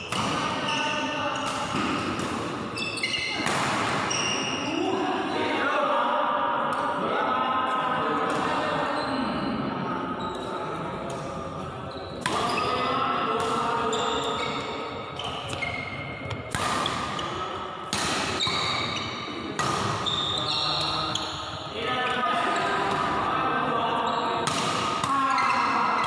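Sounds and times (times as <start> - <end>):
racket striking shuttlecock: 16.3 - 17.2, 17.9 - 18.7.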